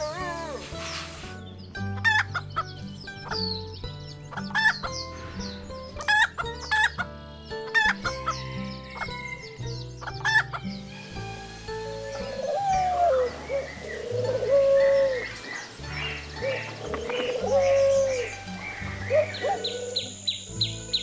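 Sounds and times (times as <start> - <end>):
background music with low notes: 0.0 - 21.0
chickens clucking: 2.0 - 3.5, 4.2 - 5.2, 5.9 - 11.2.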